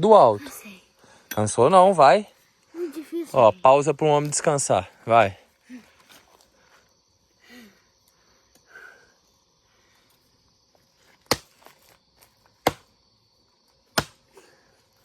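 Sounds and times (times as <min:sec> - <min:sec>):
axe chopping into log: 0:11.3 - 0:11.7, 0:12.6 - 0:12.9, 0:13.9 - 0:14.2.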